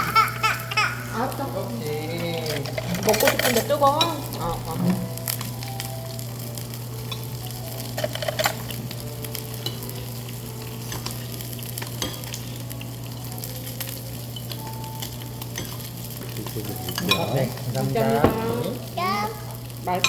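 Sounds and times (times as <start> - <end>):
meat sizzling: 0.0 - 20.0
utensils clicking: 2.2 - 5.6, 7.1 - 9.9.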